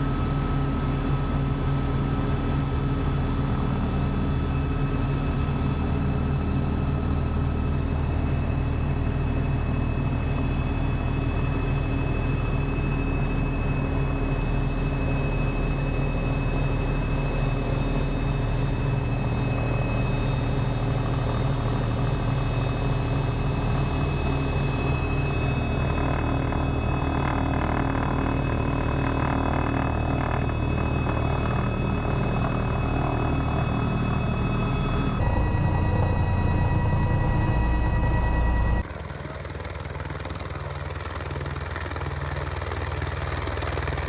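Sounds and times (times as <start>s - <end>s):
helicopter rotor drone: 0.0s - 44.0s
high whine: 29.5s - 38.8s.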